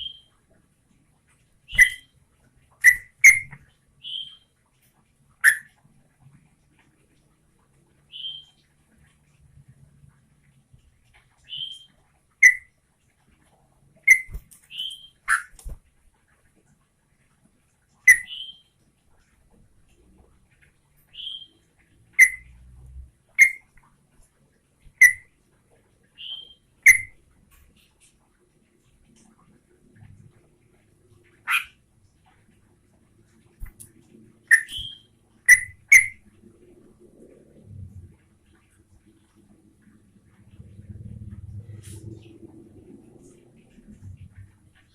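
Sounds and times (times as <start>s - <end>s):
bird chirping sharply: 0.0s - 0.3s, 1.7s - 2.1s, 2.8s - 4.5s, 5.4s - 5.7s, 8.1s - 8.6s, 11.5s - 12.7s, 14.1s - 15.6s, 18.1s - 18.7s, 21.1s - 21.6s, 22.2s - 22.5s, 23.4s - 23.7s, 25.0s - 25.2s, 26.2s - 27.2s, 34.5s - 36.2s
bird sharp call notes: 1.7s - 2.1s.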